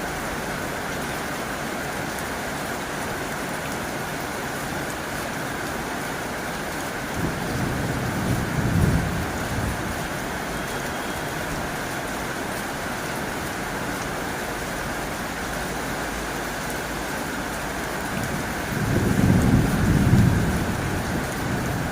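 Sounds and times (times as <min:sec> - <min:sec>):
heavy rain on a tin roof: 0:00.0 - 0:21.9
thunder rumble: 0:07.2 - 0:10.2, 0:18.2 - 0:21.9.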